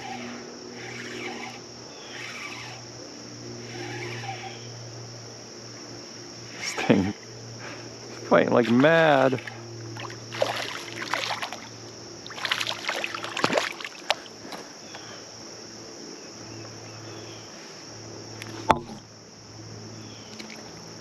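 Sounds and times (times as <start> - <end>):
fish thrashing water splashing: 8.7 - 14.2.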